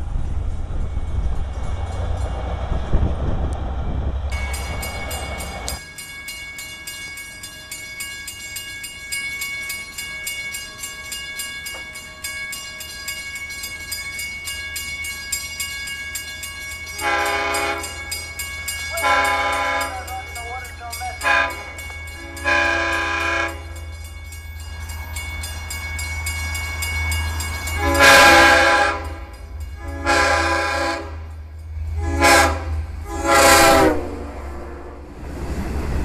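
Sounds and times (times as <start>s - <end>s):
train rumbling by: 0.0s - 36.0s
crossing bell ringing: 4.3s - 34.0s
locomotive air horn: 17.0s - 18.0s, 19.0s - 20.6s, 21.2s - 23.8s, 27.8s - 31.3s, 32.0s - 35.0s.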